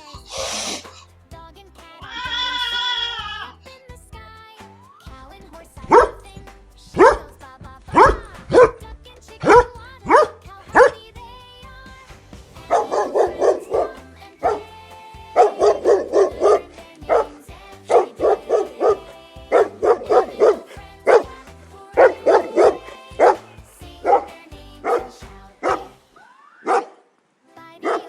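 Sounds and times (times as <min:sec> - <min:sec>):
background music: 0:00.0 - 0:28.0
dog barking: 0:07.0 - 0:07.3, 0:10.1 - 0:11.0, 0:12.7 - 0:14.7, 0:24.9 - 0:26.0, 0:26.7 - 0:27.0.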